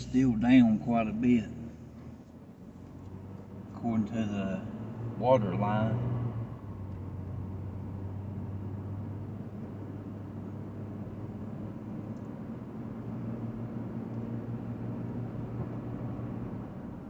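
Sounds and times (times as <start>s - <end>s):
car engine hum inside cabin: 0.0s - 17.0s.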